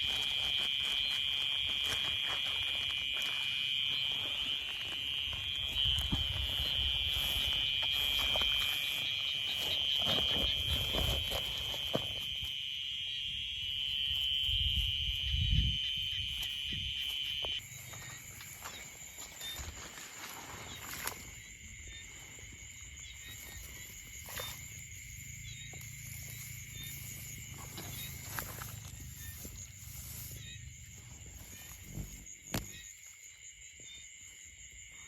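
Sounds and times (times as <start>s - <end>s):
rustling and handling noises: 0.0s - 12.4s
night insects chorus: 0.0s - 35.0s.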